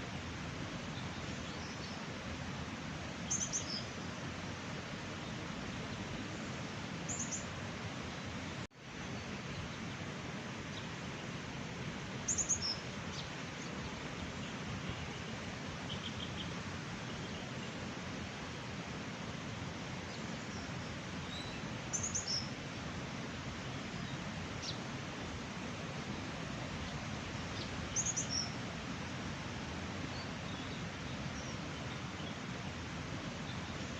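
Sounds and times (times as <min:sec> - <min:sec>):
rushing outdoor background noise: 0:00.0 - 0:33.9
small birds chirping: 0:20.1 - 0:22.6, 0:26.1 - 0:28.6.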